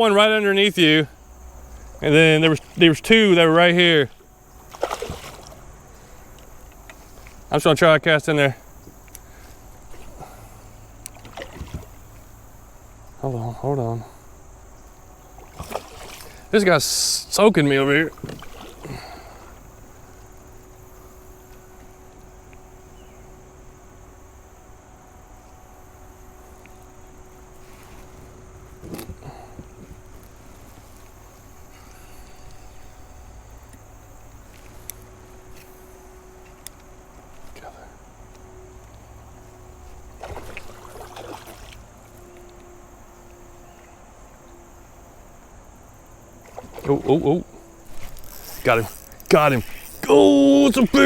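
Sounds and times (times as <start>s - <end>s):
river water flowing: 0.0s - 22.9s, 23.9s - 43.6s, 44.3s - 51.0s
crickets buzzing: 0.0s - 51.0s
faint constant hum: 0.0s - 51.0s
splashing and knocking: 4.7s - 5.7s, 11.1s - 12.1s, 15.4s - 16.4s, 18.1s - 19.1s, 40.1s - 41.9s, 46.4s - 47.3s.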